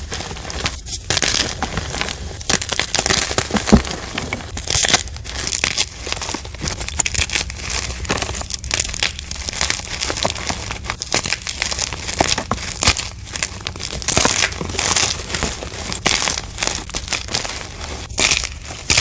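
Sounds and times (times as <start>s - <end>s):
chalk crushing and crunching: 0.0s - 19.0s.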